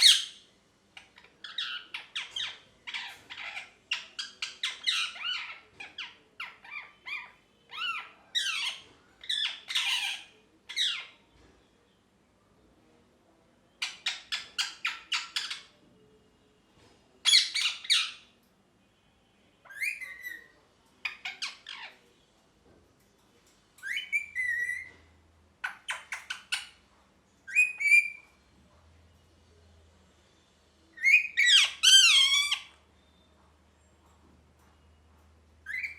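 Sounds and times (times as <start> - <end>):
parakeet squawking: 0.0 - 0.4, 1.0 - 11.2, 17.2 - 18.3, 19.6 - 22.0, 27.5 - 28.2, 31.0 - 32.8.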